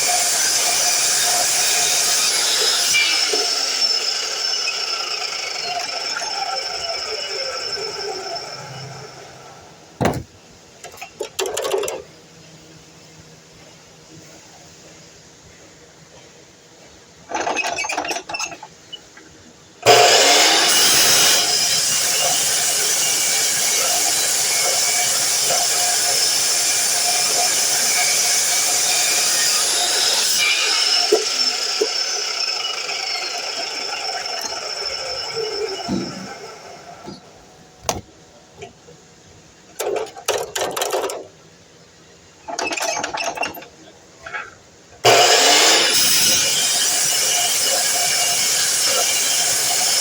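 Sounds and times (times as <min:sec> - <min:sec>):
miter saw running: 0:00.0 - 0:09.7, 0:19.9 - 0:37.1, 0:45.0 - 0:50.0
miter saw motor winding down: 0:02.9 - 0:09.8, 0:30.5 - 0:37.1
material clattering and knocking: 0:10.0 - 0:10.4.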